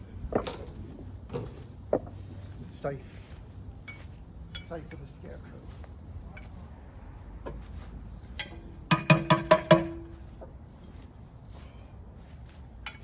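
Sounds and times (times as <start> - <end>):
hard parts knocking together: 8.4 - 10.2.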